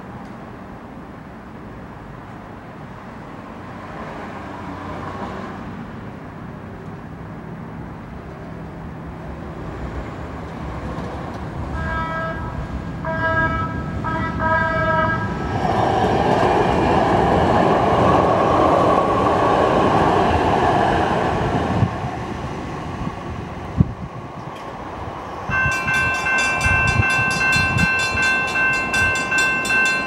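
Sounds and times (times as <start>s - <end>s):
rail and wheel noise: 0.0s - 30.0s
train horn blasts: 11.7s - 15.3s.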